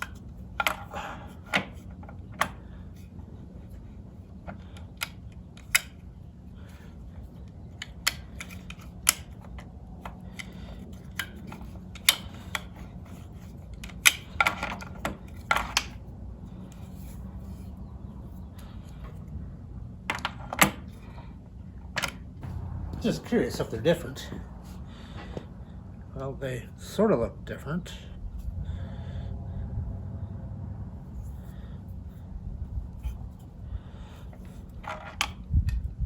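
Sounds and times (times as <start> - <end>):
steady low hum: 0.0 - 36.0
small hard parts clicking: 4.4 - 16.0.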